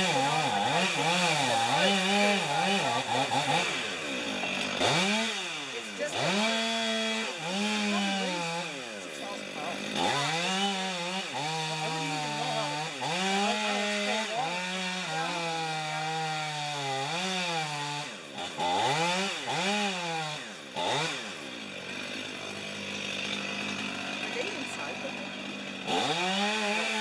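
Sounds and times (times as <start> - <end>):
chainsaw cutting wood: 0.0 - 27.0.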